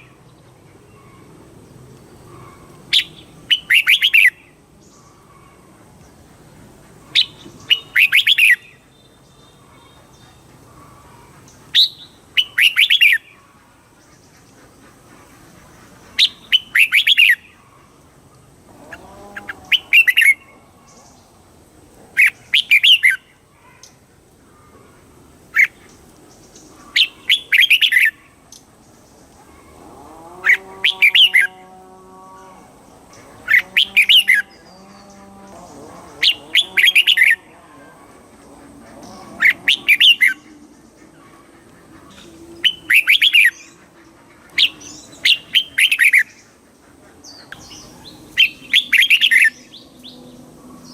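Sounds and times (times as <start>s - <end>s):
low drawn-out bird calls: 0.0s - 50.9s
bird singing warbling phrases: 2.0s - 5.3s, 7.0s - 13.4s, 16.1s - 17.7s, 18.8s - 21.4s, 22.2s - 24.0s, 25.5s - 46.6s, 47.2s - 50.9s.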